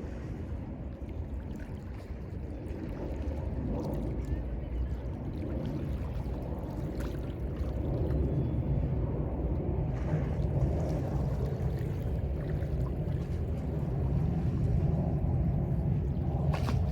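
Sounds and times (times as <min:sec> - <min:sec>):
waves lapping at shore: 0:00.0 - 0:08.1, 0:09.9 - 0:16.9
small water splashes: 0:01.0 - 0:08.6, 0:09.9 - 0:15.0, 0:16.2 - 0:16.9.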